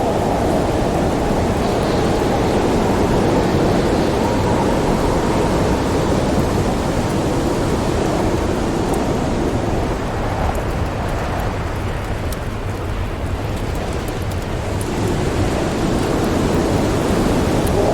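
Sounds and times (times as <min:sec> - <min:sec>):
rolling thunder: 0:00.0 - 0:11.7
faint fire crackles: 0:00.0 - 0:17.9
howling wind: 0:00.0 - 0:17.9.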